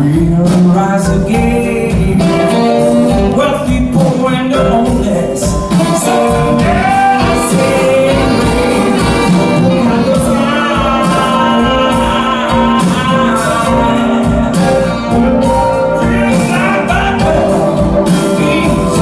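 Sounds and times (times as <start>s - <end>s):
bending lead melody line: 0.0s - 19.0s
blues band playing live: 0.0s - 19.0s.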